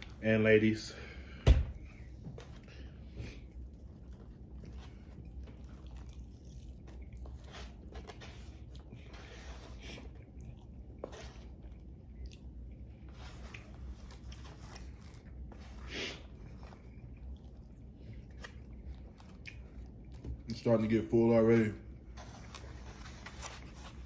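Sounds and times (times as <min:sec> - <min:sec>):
person chewing crunchy food: 0:02.5 - 0:20.2.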